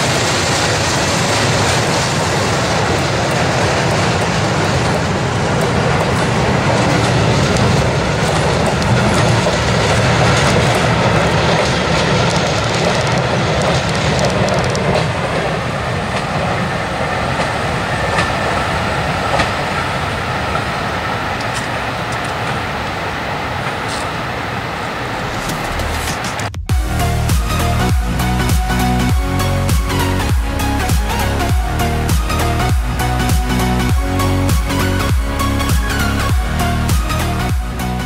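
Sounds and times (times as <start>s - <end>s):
wheels clicking over rail joints: 0.0s - 26.5s
train coaches rumbling past: 0.0s - 38.0s.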